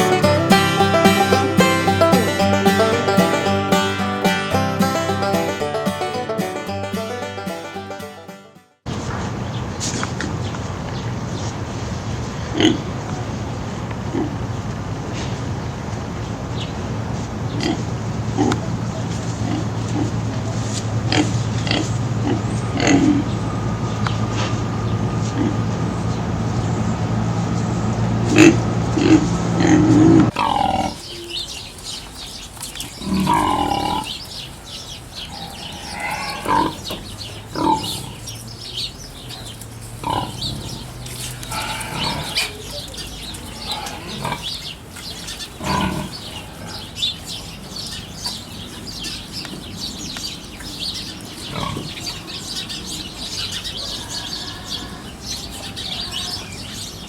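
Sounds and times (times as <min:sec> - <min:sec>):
steady mechanical hum: 0:08.9 - 0:30.4
small birds chirping: 0:12.3 - 0:57.0
pigs grunting and squealing: 0:17.6 - 0:18.8, 0:19.4 - 0:23.4, 0:25.3 - 0:25.7, 0:28.3 - 0:31.1, 0:33.0 - 0:34.2, 0:35.3 - 0:38.4, 0:40.0 - 0:44.8, 0:45.5 - 0:47.0, 0:51.5 - 0:52.2.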